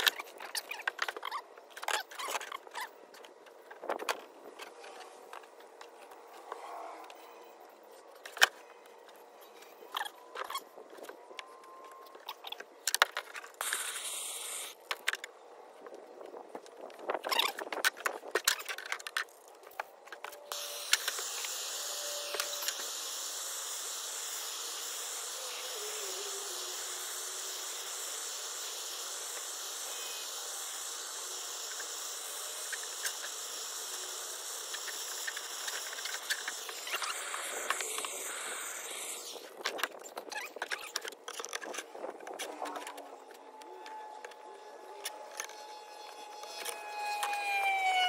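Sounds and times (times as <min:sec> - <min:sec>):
torch flame hissing: 0:13.6 - 0:14.8, 0:20.5 - 0:40.0.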